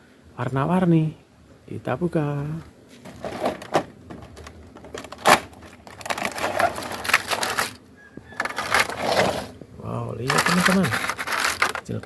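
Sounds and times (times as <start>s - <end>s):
packaging crinkling: 3.0s - 9.6s, 10.2s - 12.0s.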